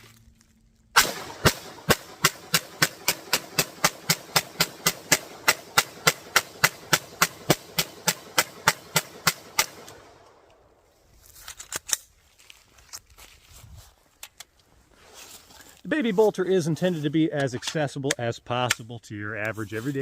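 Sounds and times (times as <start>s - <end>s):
rapid pistol gunshots: 1.0s - 10.2s.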